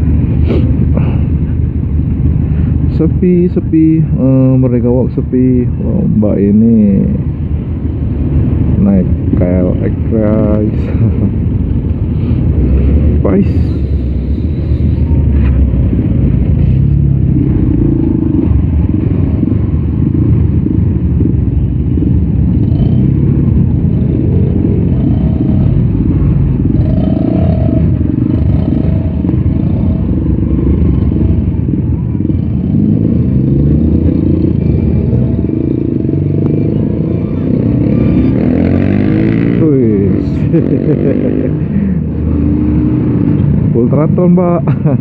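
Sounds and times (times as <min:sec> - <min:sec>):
motorcycle engine running: 0:10.0 - 0:44.8.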